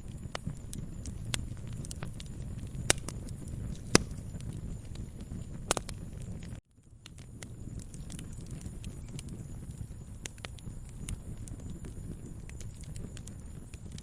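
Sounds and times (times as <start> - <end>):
fire crackles and pops: 0.0 - 14.0
fire flames rumbling: 0.0 - 14.0.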